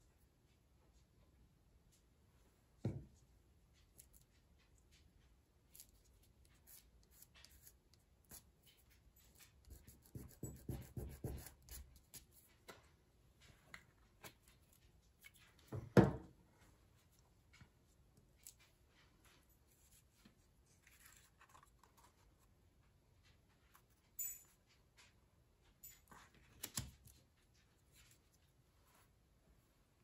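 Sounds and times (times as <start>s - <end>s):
knock on table: 15.7s - 16.2s.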